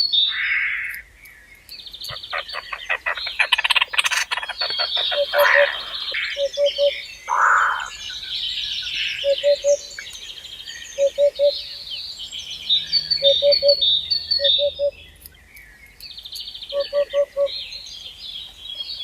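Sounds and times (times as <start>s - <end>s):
birds chirping and trilling: 0.0s - 19.0s
low bird call: 2.0s - 15.8s.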